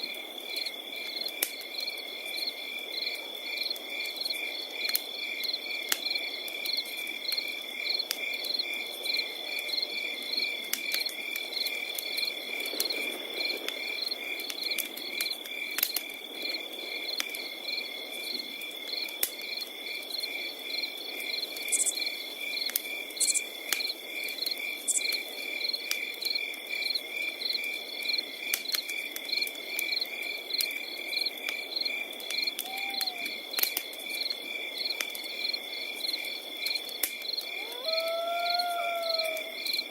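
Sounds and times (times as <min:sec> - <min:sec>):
cricket chirping: 0:00.0 - 0:39.9
wood fire crackling and popping: 0:00.5 - 0:37.6
cricket trilling: 0:16.5 - 0:33.6, 0:34.2 - 0:39.9.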